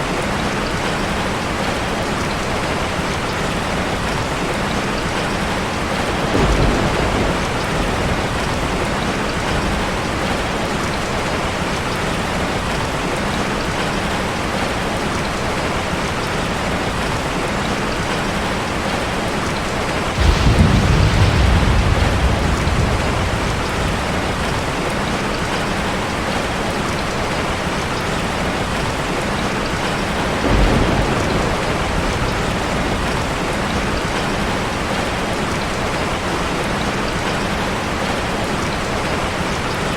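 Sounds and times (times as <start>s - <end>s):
low rumbles: 20.1s - 26.2s.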